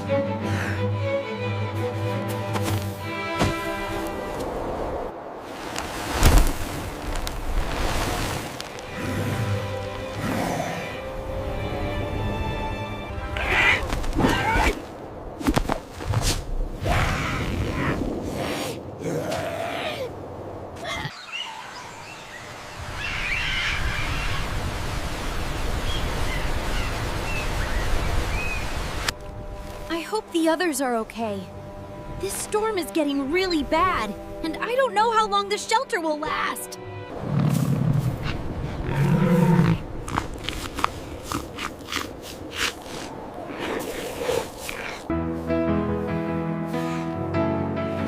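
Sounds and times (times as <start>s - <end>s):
storm wind blowing: 3.6s - 30.4s.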